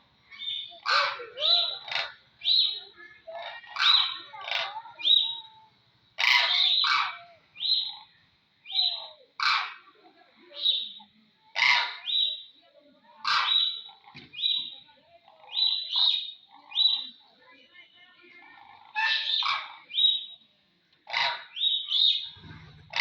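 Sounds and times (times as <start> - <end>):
crane calling: 0.0 - 5.6, 6.2 - 8.1, 18.4 - 20.4.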